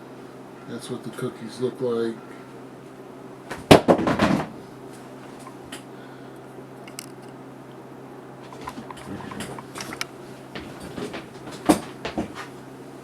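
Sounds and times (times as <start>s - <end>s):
faint steady hum: 0.0s - 13.0s
small clicks: 6.9s - 7.4s, 8.6s - 10.1s.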